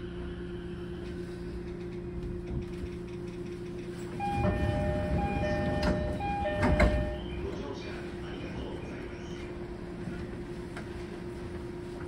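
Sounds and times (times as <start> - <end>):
electric train running rumble: 0.0 - 12.0
two-tone ringing: 4.2 - 7.3.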